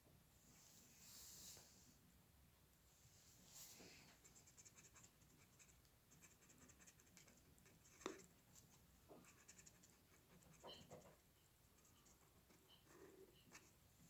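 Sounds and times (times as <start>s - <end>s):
pencil scratching on paper: 4.2s - 13.8s.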